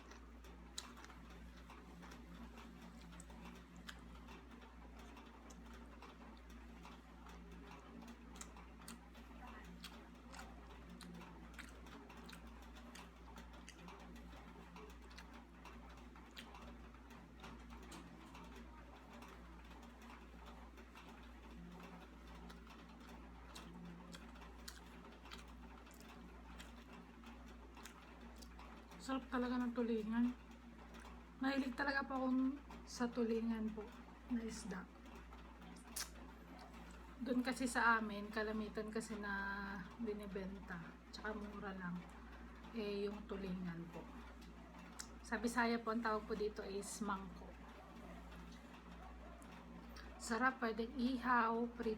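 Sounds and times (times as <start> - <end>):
person chewing: 0.0 - 4.3, 8.1 - 15.4, 22.4 - 26.9, 27.8 - 28.6, 35.8 - 37.0
chewing and utensil clicks: 0.0 - 31.8, 33.8 - 38.1, 41.3 - 50.2
low steady hum: 0.0 - 51.9.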